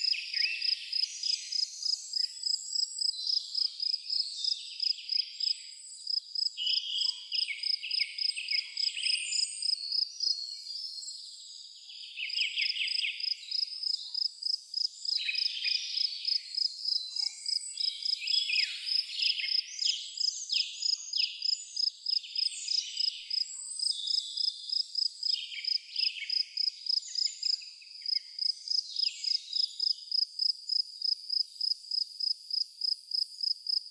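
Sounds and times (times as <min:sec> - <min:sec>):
crickets chirping: 0:00.0 - 0:05.5, 0:06.1 - 0:06.5, 0:20.2 - 0:33.9
songbirds singing trills: 0:00.0 - 0:31.8.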